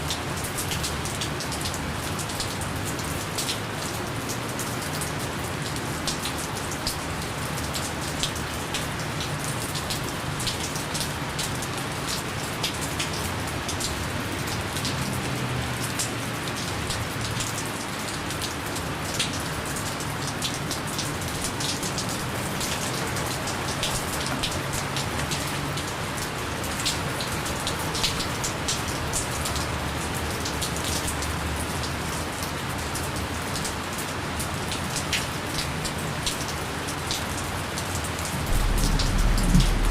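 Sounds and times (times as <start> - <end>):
raindrops pattering on a surface: 0.0 - 39.9
gentle rain hissing: 38.0 - 39.9.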